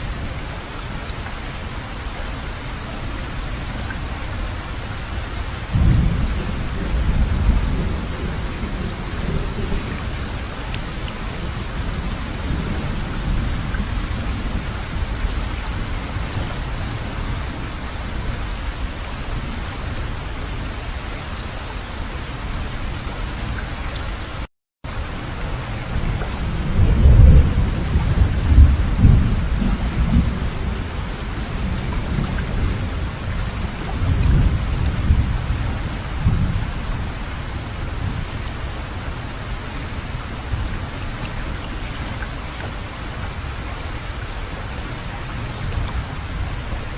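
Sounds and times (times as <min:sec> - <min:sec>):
heavy rain falling: 0:00.0 - 0:46.9
thunder rumbling: 0:05.7 - 0:20.0, 0:25.8 - 0:38.4.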